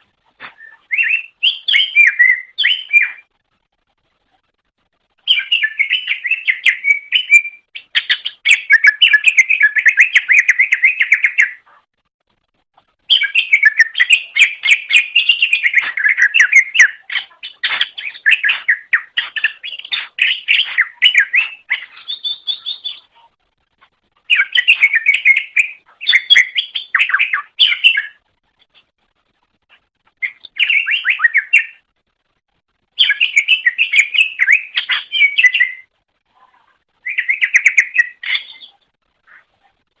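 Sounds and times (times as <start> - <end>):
bird singing whistled notes: 0.5 - 3.3, 5.2 - 11.6, 13.1 - 23.1, 24.3 - 28.2, 30.2 - 31.9, 33.0 - 35.9, 37.0 - 38.8.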